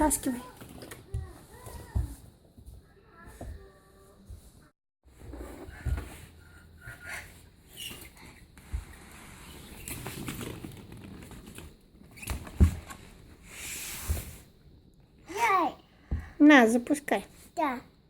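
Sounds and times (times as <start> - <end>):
plastic balls rustling and clattering: 9.4 - 12.4.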